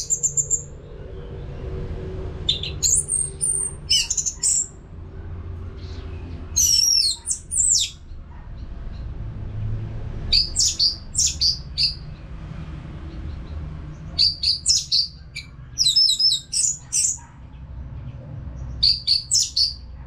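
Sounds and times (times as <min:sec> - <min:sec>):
steady low hum: 0:00.0 - 0:10.3
bird singing whistled phrases: 0:02.5 - 0:04.7, 0:06.6 - 0:08.0, 0:10.4 - 0:12.0, 0:14.2 - 0:15.2, 0:18.8 - 0:19.8.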